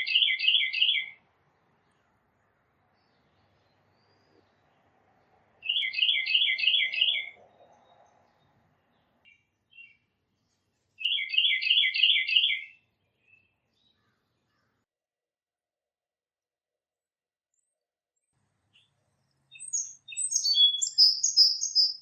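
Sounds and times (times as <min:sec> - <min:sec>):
songbird whistling phrases: 0:00.0 - 0:01.2, 0:05.6 - 0:07.4, 0:11.0 - 0:12.8, 0:19.5 - 0:22.0
soft bird call notes: 0:19.5 - 0:22.0.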